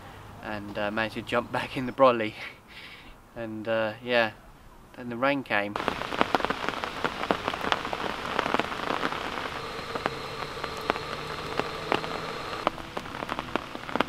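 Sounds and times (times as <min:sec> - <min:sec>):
rain falling onto a lake: 0:05.8 - 0:14.0.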